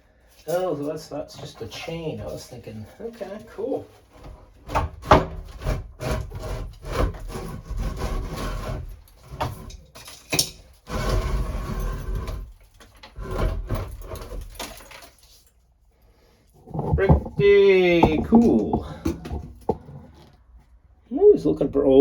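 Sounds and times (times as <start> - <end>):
wood scraping and rubbing: 1.3 - 15.4, 16.6 - 20.8
wood knocking and clattering: 4.1 - 7.3, 16.6 - 20.4.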